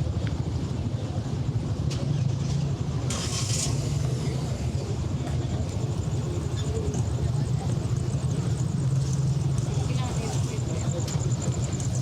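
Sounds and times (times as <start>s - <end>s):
road traffic rumble: 0.0s - 12.0s
short hiss: 3.1s - 4.1s.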